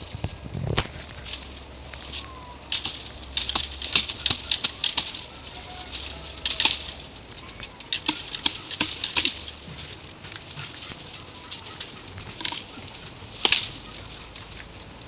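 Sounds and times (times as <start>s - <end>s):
dry leaves rustling and crackling: 0.0s - 15.0s
bamboo shoot snapping: 0.7s - 11.3s, 11.9s - 15.0s.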